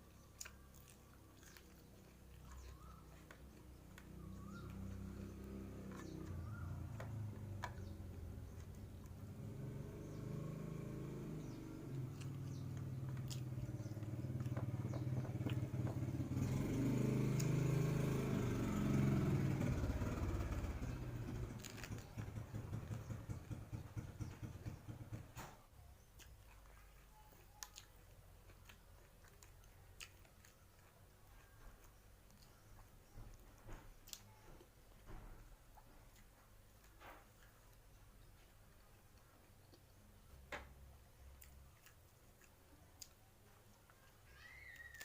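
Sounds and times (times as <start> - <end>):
vehicle engine passing by: 1.0 - 25.6.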